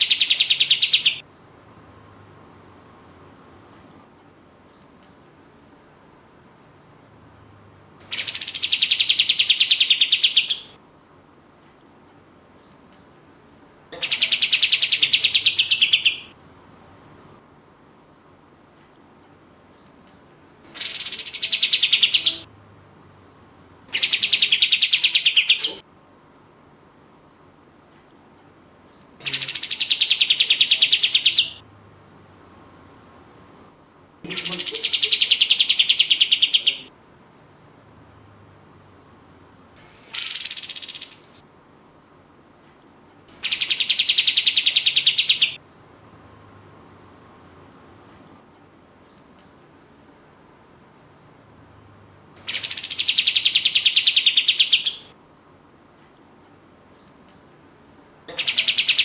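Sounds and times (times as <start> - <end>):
bulbul singing rapid repeated notes: 0.0 - 1.2, 29.2 - 31.6, 34.3 - 36.9, 40.0 - 41.4, 43.4 - 45.6, 52.4 - 55.1.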